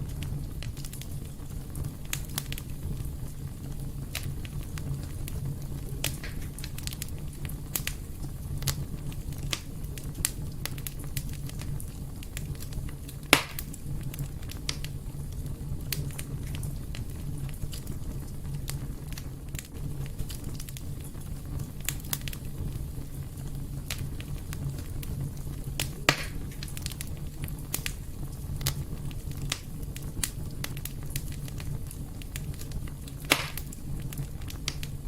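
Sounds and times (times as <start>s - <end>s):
fire crackles: 0.0s - 35.0s
fire low rumble: 0.0s - 35.0s
loud fire pop: 6.0s - 6.7s, 13.2s - 13.8s, 25.8s - 26.9s, 33.2s - 33.8s.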